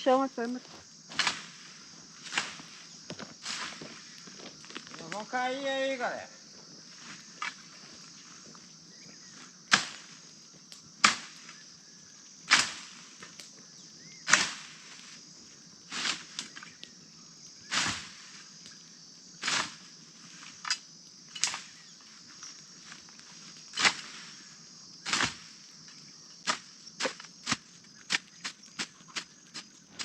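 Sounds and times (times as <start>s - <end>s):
insects chirring: 0.0s - 30.0s
bonfire popping and snapping: 0.4s - 5.8s, 6.5s - 11.6s, 12.2s - 13.6s.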